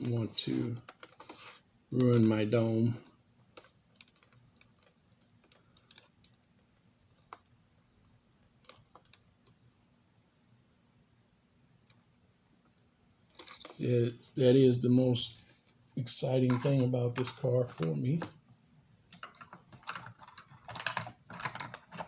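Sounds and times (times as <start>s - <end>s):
small clicks and taps: 3.0s - 7.6s, 8.4s - 9.6s, 19.1s - 22.0s.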